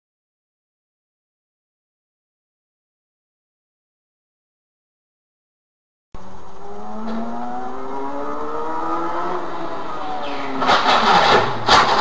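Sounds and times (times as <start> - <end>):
car engine accelerating: 6.2 - 12.0
loud rough noise: 6.2 - 12.0.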